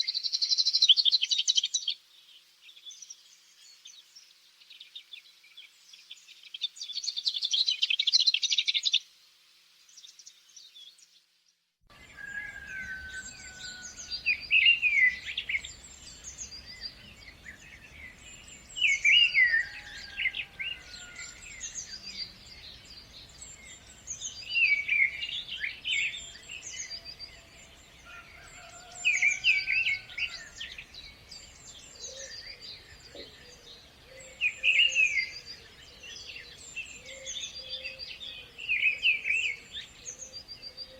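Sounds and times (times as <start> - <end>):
quiet bird calls: 12.0 - 40.9
bird repeating song phrase: 12.1 - 27.9.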